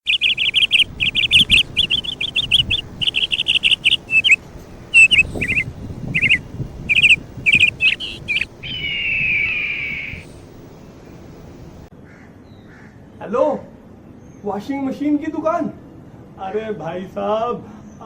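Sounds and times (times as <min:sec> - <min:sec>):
long falling bird whistle: 0:00.0 - 0:10.4
bird chirping: 0:00.0 - 0:11.3.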